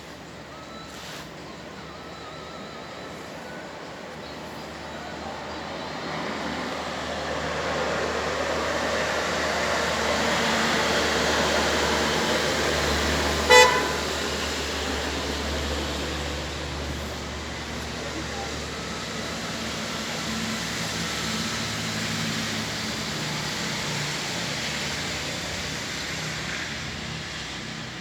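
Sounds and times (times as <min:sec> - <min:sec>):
vehicle passing by: 0:06.0 - 0:27.4
car horn toot: 0:13.4 - 0:14.3.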